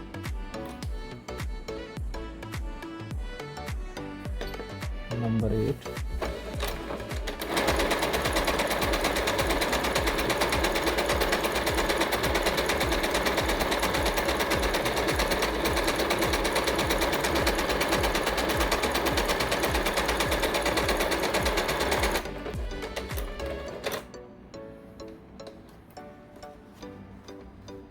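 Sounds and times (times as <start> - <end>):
sewing machine stitching: 6.2 - 24.1.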